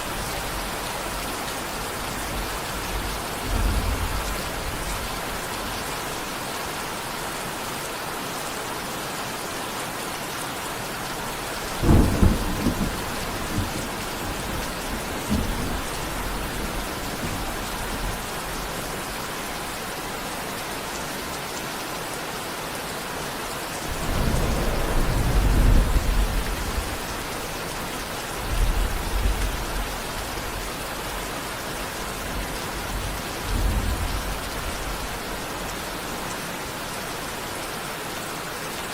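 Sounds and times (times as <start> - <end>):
steady rain falling: 0.0 - 38.9
thunder rumbling: 1.8 - 5.5, 11.3 - 19.8, 23.8 - 30.2.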